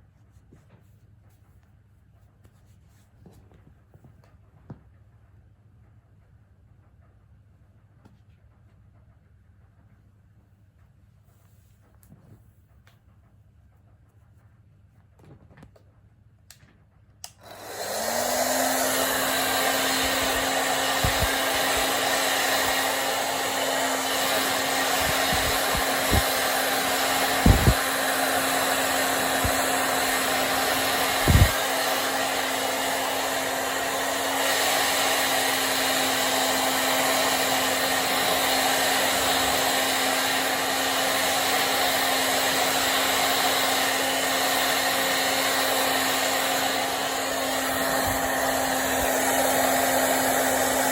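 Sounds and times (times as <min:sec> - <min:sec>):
hair dryer motor blowing: 0:17.2 - 0:50.9.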